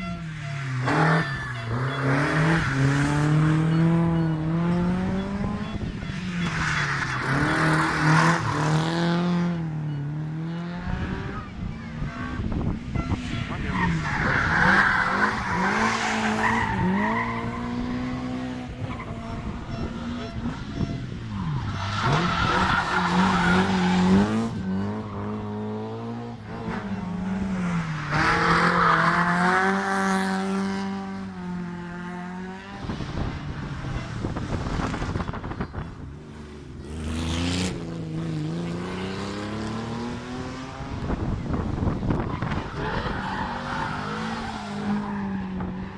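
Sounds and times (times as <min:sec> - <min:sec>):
tyre squeal: 0:00.0 - 0:25.6, 0:42.2 - 0:45.9
rally car engine revving hard: 0:00.8 - 0:45.9.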